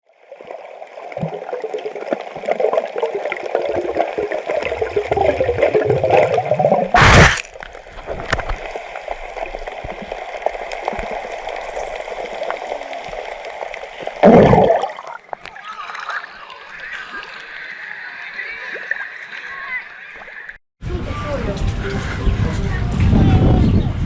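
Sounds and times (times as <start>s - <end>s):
sea water sloshing and gurgling: 0.1s - 17.8s.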